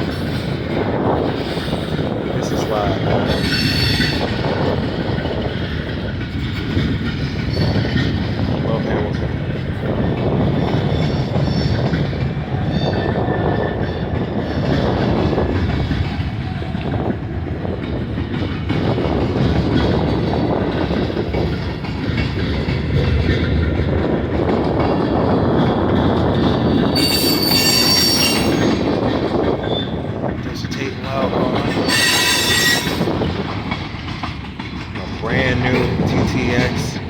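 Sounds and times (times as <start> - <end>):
train wheels rumbling on rails: 0.0 - 37.0
wheel squeal: 26.9 - 28.8, 29.6 - 30.0, 31.8 - 33.1.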